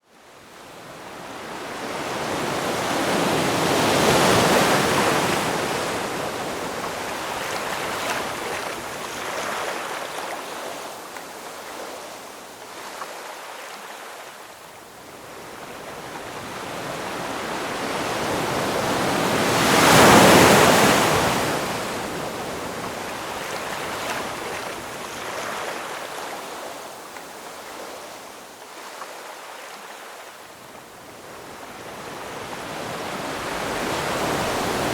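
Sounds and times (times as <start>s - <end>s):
ocean waves breaking on shore: 0.2s - 34.9s
large waves crashing: 1.0s - 10.7s, 15.3s - 26.8s, 31.2s - 34.9s.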